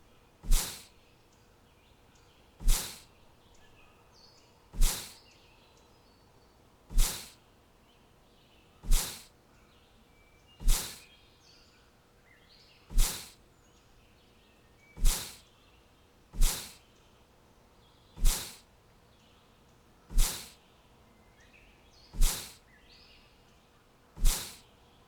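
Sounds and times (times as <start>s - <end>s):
faint bird chirps: 0.0s - 25.0s
loud short whooshes: 0.4s - 0.9s, 2.6s - 3.0s, 4.8s - 5.2s, 6.9s - 7.4s, 8.9s - 9.3s, 10.6s - 11.0s, 12.9s - 13.4s, 15.0s - 15.4s, 16.4s - 16.8s, 18.2s - 18.6s, 20.1s - 20.5s, 22.2s - 22.6s, 24.2s - 24.6s.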